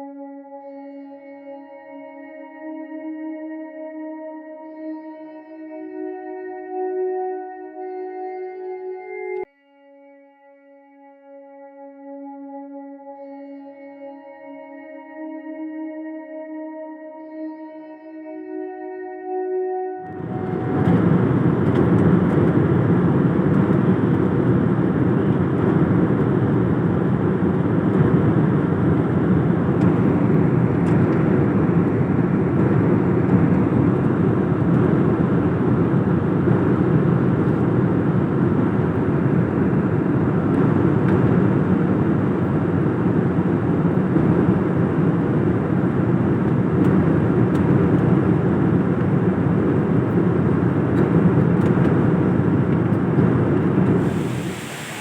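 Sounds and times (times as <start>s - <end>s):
indoor waterfall rushing: 54.0s - 55.0s.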